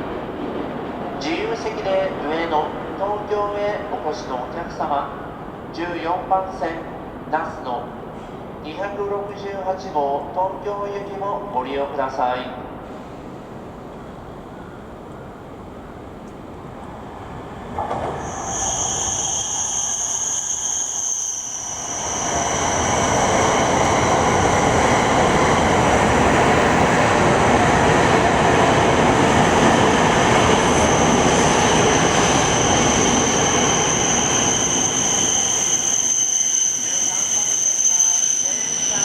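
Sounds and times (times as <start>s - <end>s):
high-pitched squeal: 18.2s - 27.0s, 30.5s - 39.0s
train rushing rumble: 21.7s - 37.6s.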